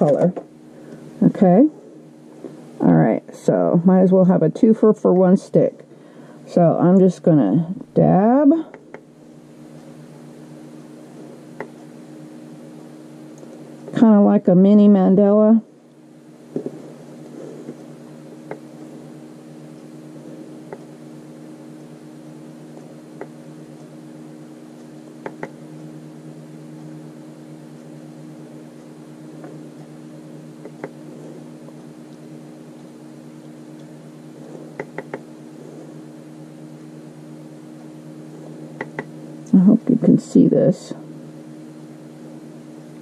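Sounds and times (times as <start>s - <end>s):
low appliance hum: 0.0s - 43.0s
sharp little clicks and taps: 25.2s - 25.6s, 34.8s - 35.2s, 38.8s - 39.1s.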